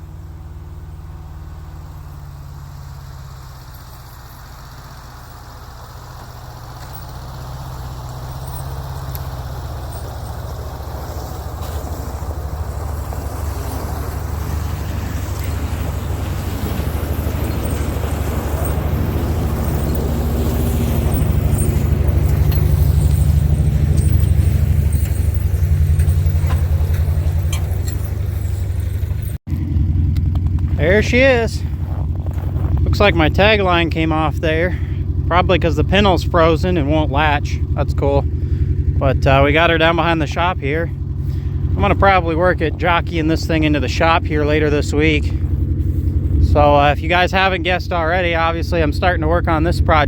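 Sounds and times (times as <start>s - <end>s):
truck engine running: 0.0s - 50.0s.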